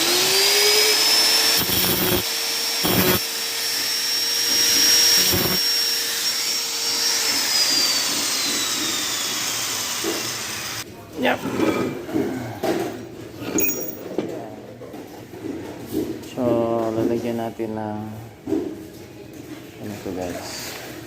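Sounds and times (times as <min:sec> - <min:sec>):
electric motor whining: 0:00.0 - 0:10.8.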